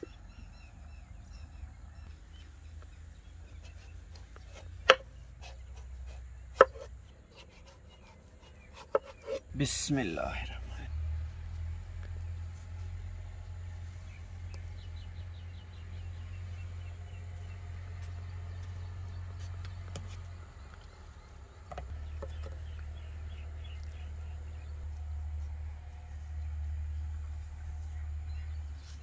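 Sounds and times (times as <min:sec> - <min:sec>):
bird chirping: 0:00.0 - 0:29.0
knife cutting melon: 0:03.5 - 0:09.5
steady low hum: 0:09.4 - 0:29.0.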